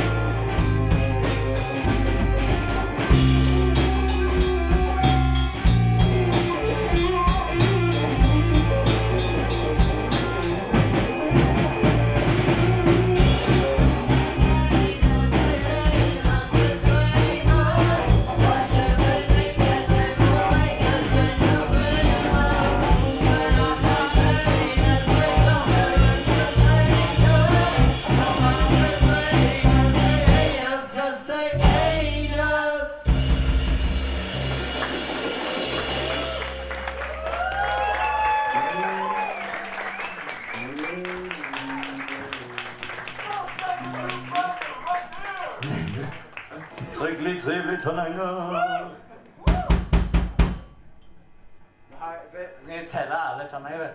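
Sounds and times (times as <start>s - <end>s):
accordion: 0.0s - 30.7s
bass guitar: 0.0s - 30.8s, 31.4s - 38.6s
drum kit: 0.0s - 30.8s, 31.5s - 32.3s, 33.0s - 39.2s, 49.5s - 50.9s
guitar: 0.0s - 30.8s, 31.5s - 38.0s
person singing: 13.2s - 33.1s.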